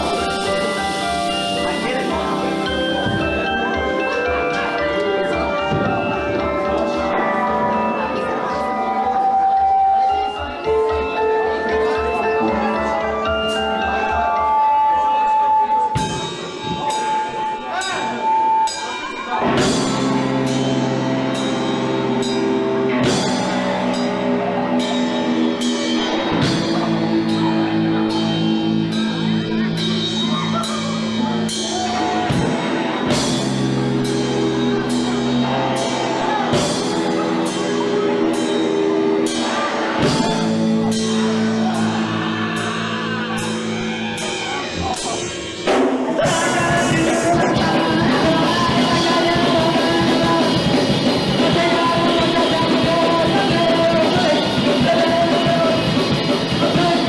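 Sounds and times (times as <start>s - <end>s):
guitar chords: 0.0s - 18.4s, 19.0s - 57.0s
person singing: 46.0s - 57.0s.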